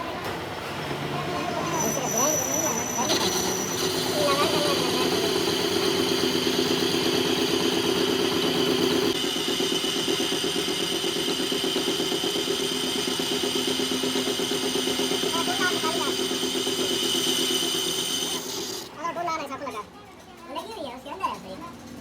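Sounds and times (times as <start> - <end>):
machine motor humming with whine: 2.7 - 18.9.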